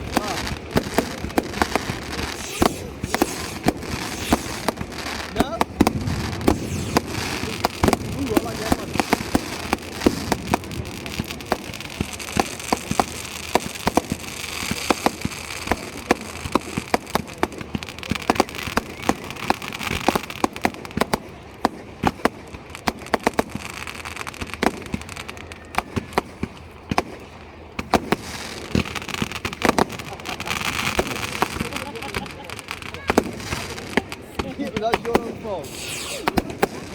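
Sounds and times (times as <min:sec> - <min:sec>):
steady hiss: 0:00.0 - 0:18.4, 0:27.9 - 0:36.9
fireworks bangs and crackles: 0:00.0 - 0:36.9.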